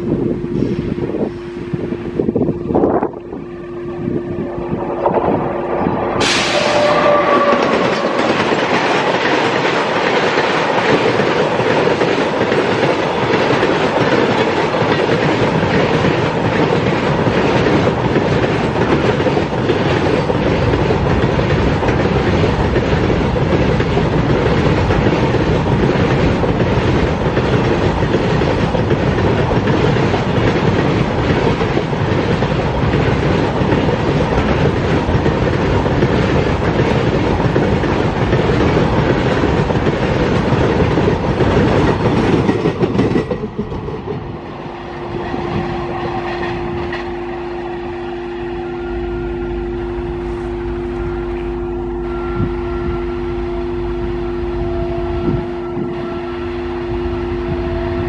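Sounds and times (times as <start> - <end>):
train rumbling past: 0.0 - 58.0
train wheels clattering over rail joints: 6.2 - 44.5.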